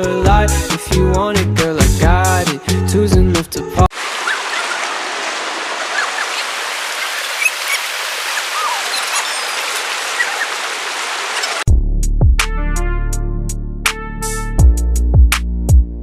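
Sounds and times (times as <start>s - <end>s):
river water rushing: 3.9s - 11.7s
faint high chirps: 5.9s - 10.6s.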